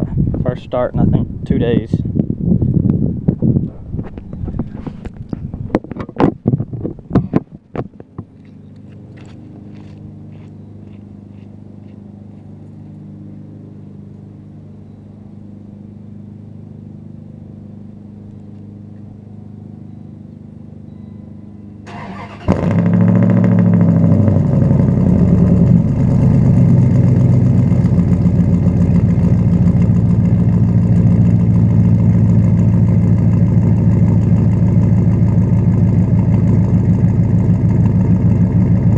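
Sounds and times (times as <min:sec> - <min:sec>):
engine starting and idling: 0:21.8 - 0:38.9.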